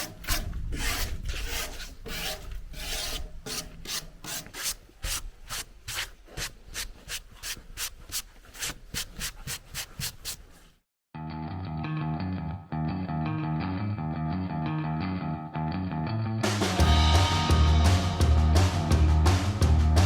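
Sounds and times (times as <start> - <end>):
guitar music: 11.2 - 20.0.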